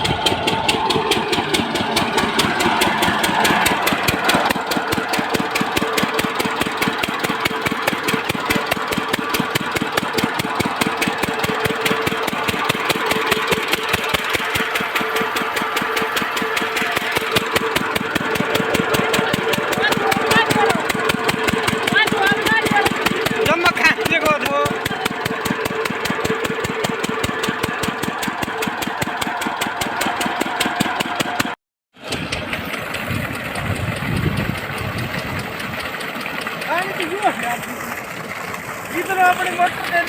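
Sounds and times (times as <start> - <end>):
diesel engine beating: 0.0 - 40.0.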